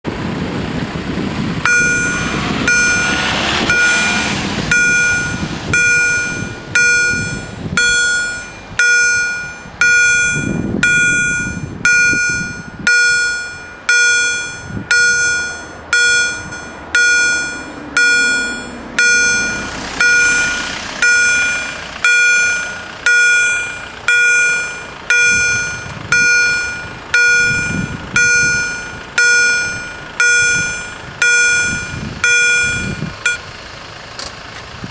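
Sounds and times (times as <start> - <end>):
road vehicles passing: 0.0 - 34.9
level crossing warning bell: 1.6 - 34.1.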